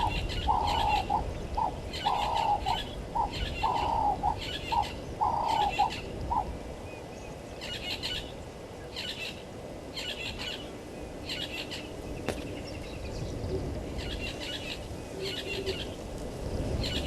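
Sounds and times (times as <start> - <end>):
dove cooing: 0.0 - 6.6, 13.5 - 16.0
bird chirping: 0.0 - 9.4.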